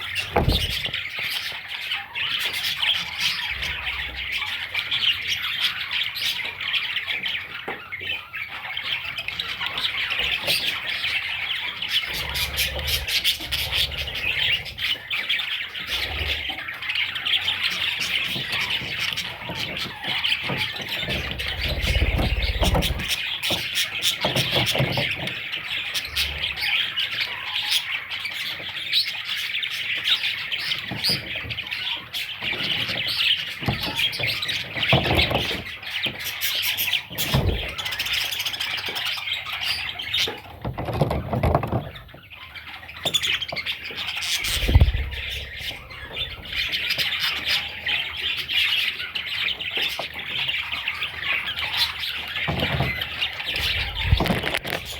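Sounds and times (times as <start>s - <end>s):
budgerigar chicks chirping: 0.0s - 54.9s
dull low thumps: 44.4s - 46.7s.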